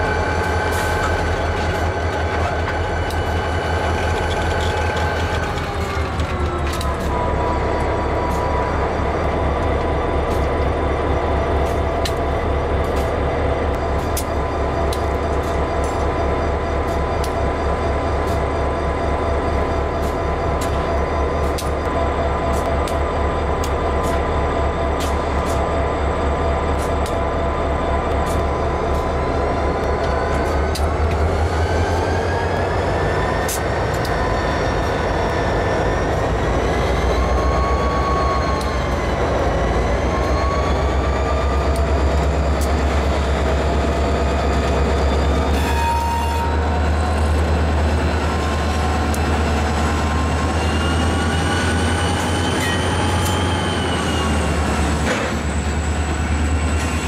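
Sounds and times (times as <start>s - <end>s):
diesel locomotive engine drone: 0.0s - 57.0s
clicks from rolling train: 0.3s - 7.2s, 11.6s - 18.7s, 19.5s - 25.7s, 26.7s - 27.4s, 28.1s - 37.2s, 40.2s - 44.9s, 46.7s - 50.0s, 52.1s - 53.5s, 54.7s - 55.8s
high wheel squeal: 28.3s - 47.6s, 49.2s - 57.0s.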